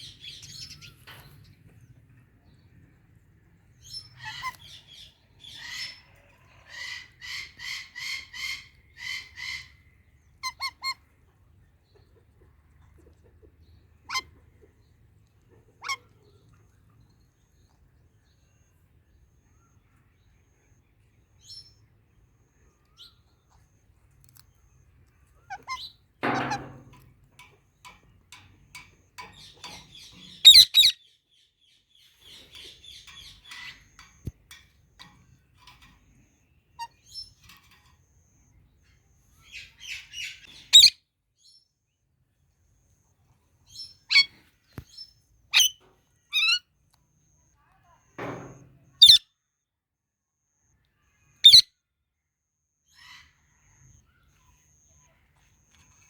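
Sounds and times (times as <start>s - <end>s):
parrots chirping and chattering: 3.8s - 11.1s, 13.2s - 14.7s, 15.5s - 16.4s, 25.2s - 31.0s, 32.0s - 38.3s, 39.0s - 41.0s, 43.7s - 46.6s, 49.0s - 49.2s, 51.4s - 51.6s.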